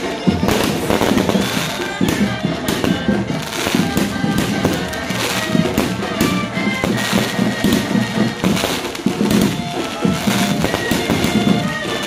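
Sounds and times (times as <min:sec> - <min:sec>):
fireworks bursting and crackling: 0:00.0 - 0:12.0
music with pulsing beat: 0:00.0 - 0:12.0.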